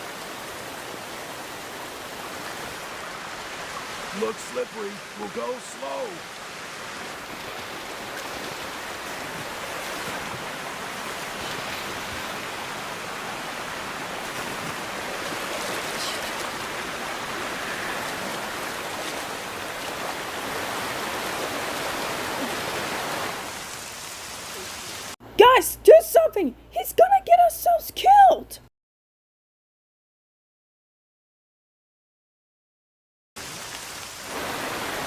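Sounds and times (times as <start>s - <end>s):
rushing water: 0.0s - 25.2s, 33.4s - 35.0s.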